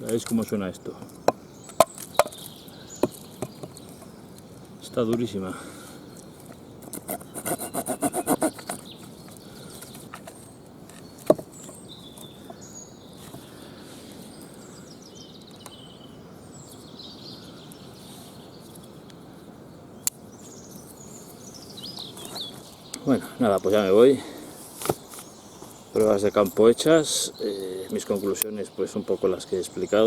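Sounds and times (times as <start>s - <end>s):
small birds chirping: 0.0s - 30.0s
rasping strokes on hard wood: 7.0s - 8.9s.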